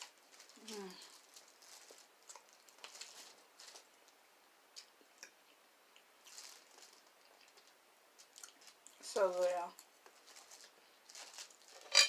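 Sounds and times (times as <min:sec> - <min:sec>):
close-up chewing: 0:00.1 - 0:03.9, 0:04.8 - 0:09.0.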